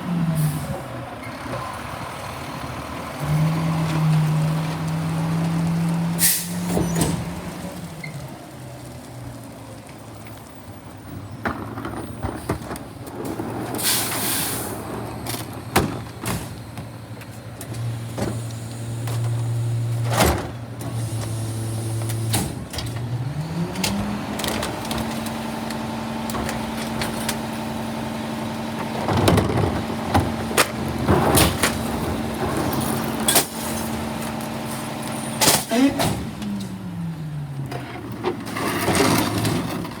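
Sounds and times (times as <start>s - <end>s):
garbage truck engine: 0.0s - 40.0s
air brake hiss: 6.2s - 6.6s, 13.8s - 14.8s.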